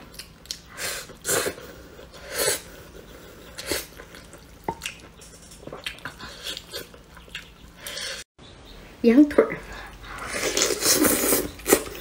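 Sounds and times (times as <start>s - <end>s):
wet squelchy chewing: 0.0s - 2.2s, 3.3s - 8.3s.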